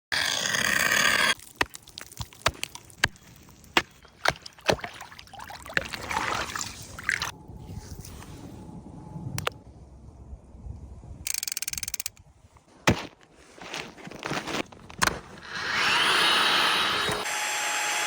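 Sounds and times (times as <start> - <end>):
water splashing: 1.4 - 7.3.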